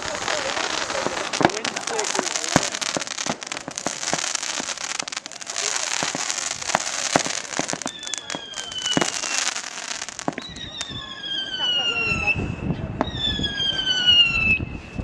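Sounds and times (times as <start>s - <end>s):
fireworks crackling: 0.0s - 12.0s
whistle falling in pitch: 7.7s - 9.5s, 10.2s - 14.6s.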